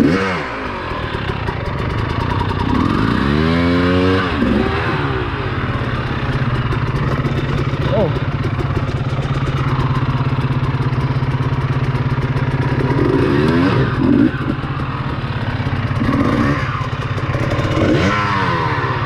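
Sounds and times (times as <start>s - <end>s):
dirt bike engine idling: 0.0s - 19.0s.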